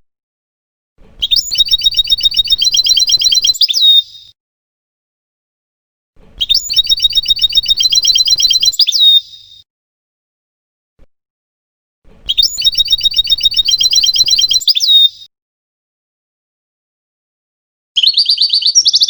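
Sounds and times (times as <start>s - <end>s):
goldfinch singing trill: 1.2s - 4.3s, 6.4s - 9.6s, 12.2s - 15.3s.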